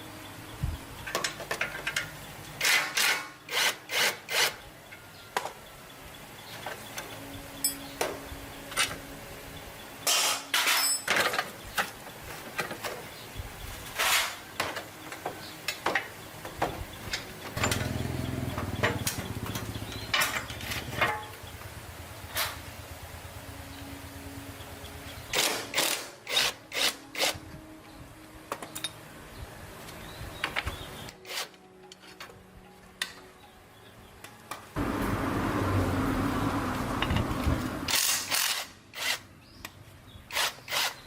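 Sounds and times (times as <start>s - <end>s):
hand tool scraping and rubbing: 13.9s - 14.5s.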